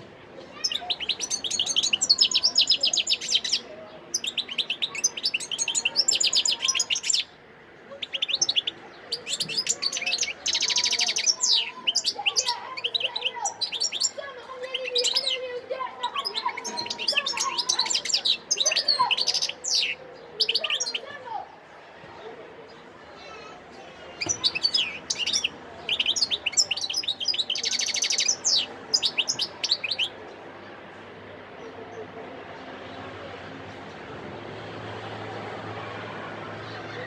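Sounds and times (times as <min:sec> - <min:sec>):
goldfinch twittering song: 0:00.5 - 0:07.4, 0:08.0 - 0:21.0, 0:24.2 - 0:30.2.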